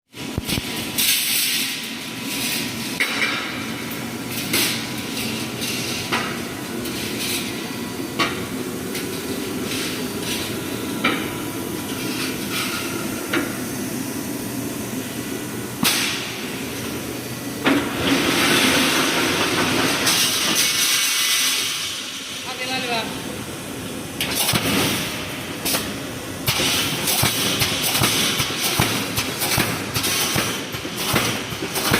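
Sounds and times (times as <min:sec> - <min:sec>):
sharp machine clanks: 0:24.2 - 0:31.9.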